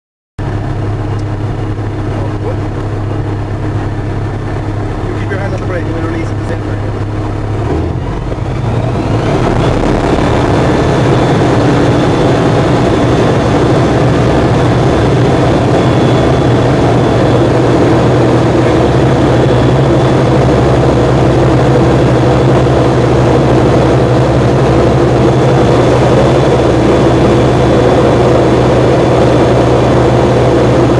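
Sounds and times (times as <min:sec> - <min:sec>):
propeller aircraft engine: 0:00.4 - 0:30.9.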